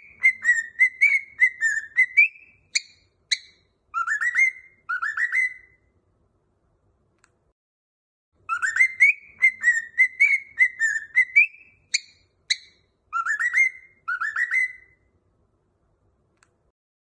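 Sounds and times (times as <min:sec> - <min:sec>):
cockatiel chirps: 0:00.0 - 0:05.8, 0:08.4 - 0:15.1
cockatiel whistling: 0:00.0 - 0:05.8, 0:08.5 - 0:15.0.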